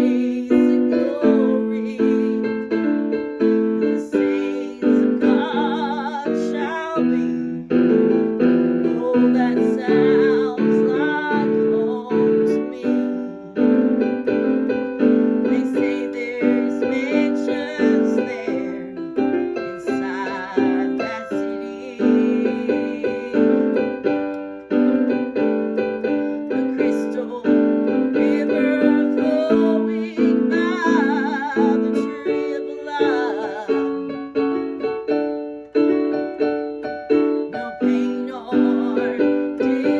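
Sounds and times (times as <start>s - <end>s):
woman singing with vibrato: 0.0s - 2.6s, 3.8s - 7.7s, 8.8s - 13.7s, 15.4s - 19.0s, 19.8s - 23.9s, 26.5s - 34.1s, 37.5s - 39.9s
piano chords and runs: 0.0s - 39.9s.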